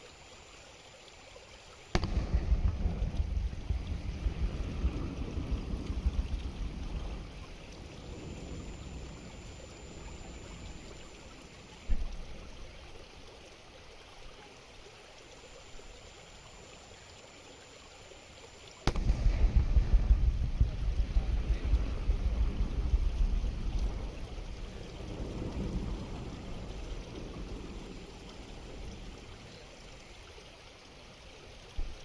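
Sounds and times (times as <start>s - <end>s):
distant firework boom: 1.9s - 9.3s, 18.8s - 27.1s
wind rumble on microphone: 2.0s - 12.8s, 18.9s - 29.6s.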